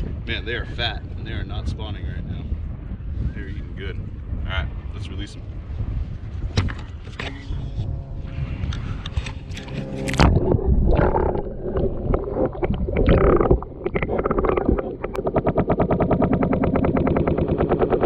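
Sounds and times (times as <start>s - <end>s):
fast rattling pulse: 6.4s - 18.0s
water splashing: 9.6s - 15.9s.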